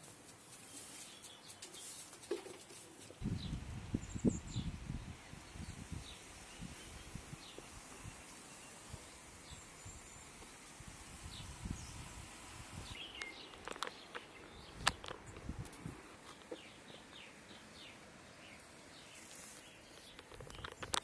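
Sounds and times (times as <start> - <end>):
faint outdoor background noise: 0.0 - 21.0
small birds chirping: 0.0 - 21.0
clicks and knocks on microphone: 20.0 - 21.0.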